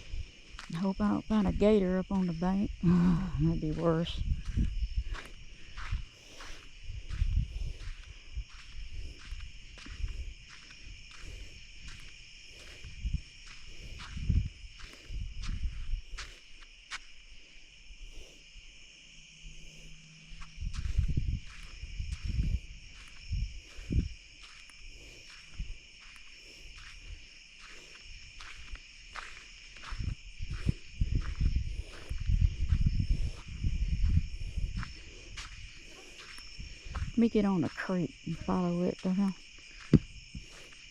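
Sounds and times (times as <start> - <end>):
crickets trilling: 0.0 - 40.9
footsteps thumping and rustling: 39.6 - 40.9.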